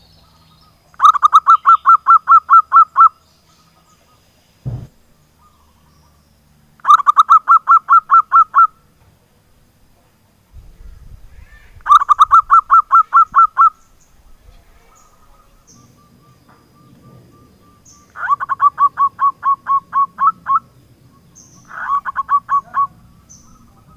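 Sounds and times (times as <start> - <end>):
dove cooing staccato: 6.8 - 8.8, 11.8 - 13.8, 15.0 - 20.7, 21.6 - 23.9.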